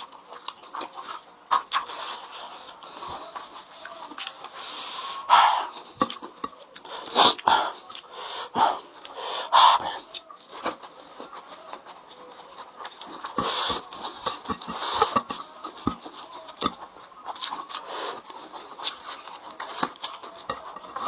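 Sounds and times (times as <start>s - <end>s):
mouth clicks and eating smacks: 0.0s - 4.6s, 5.8s - 8.1s, 9.8s - 21.0s
person breathing hard in hissing puffs: 6.9s - 9.9s.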